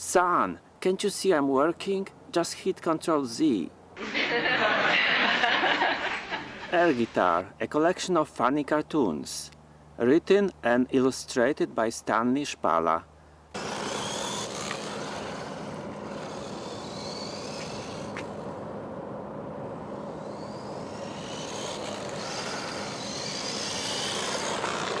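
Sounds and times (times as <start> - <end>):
small electric motor whining: 13.5 - 25.0.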